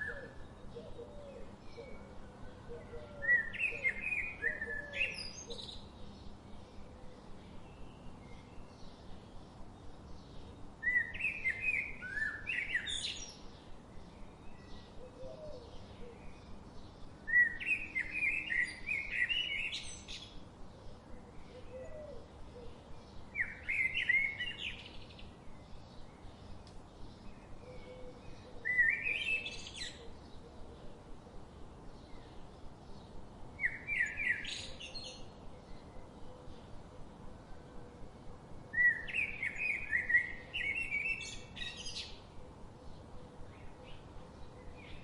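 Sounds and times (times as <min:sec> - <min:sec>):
faint bird chirps: 0:00.0 - 0:09.4, 0:10.2 - 0:31.0
soft outdoor hiss: 0:00.0 - 0:45.0
songbird singing: 0:00.0 - 0:45.0.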